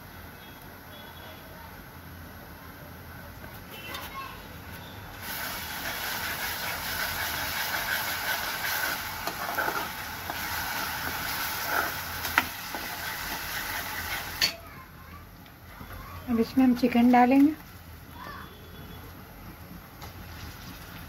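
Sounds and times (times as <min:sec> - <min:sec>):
onions sizzling in hot oil: 0:05.1 - 0:15.0
ladle scraping pan: 0:06.0 - 0:14.6.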